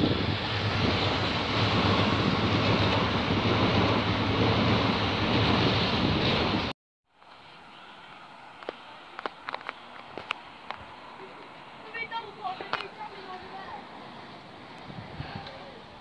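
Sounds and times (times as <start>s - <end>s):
electric train rushing past: 0.0s - 6.7s.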